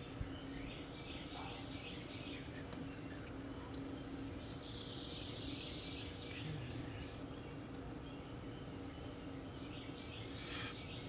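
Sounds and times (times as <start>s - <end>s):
faint bird chirps: 0.0s - 11.0s
steady low hum: 0.0s - 11.0s
buzzy bird call: 10.3s - 11.0s.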